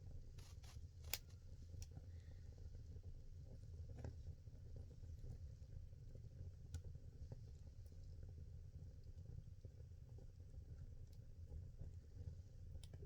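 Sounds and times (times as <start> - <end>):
low rumble of flames: 1.2 - 13.0.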